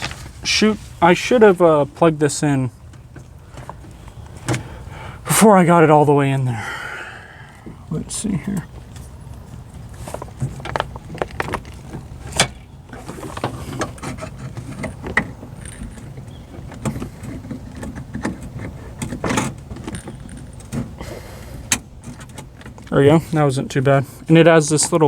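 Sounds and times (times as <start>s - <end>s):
parts rattling inside car door: 2.7s - 5.0s, 6.7s - 23.4s.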